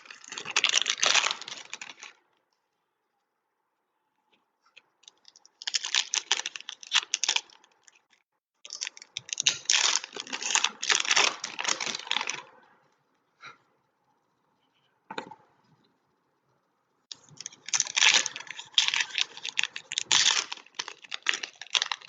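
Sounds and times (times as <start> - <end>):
card packs crinkling: 0.0 - 2.2, 5.6 - 8.0, 8.7 - 12.5, 17.1 - 22.0.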